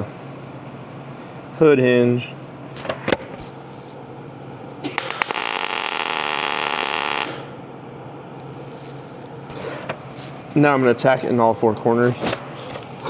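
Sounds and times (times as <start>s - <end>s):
welding arc crackling hiss: 2.7s - 7.8s, 8.4s - 10.5s
welder clicks: 5.0s - 7.4s.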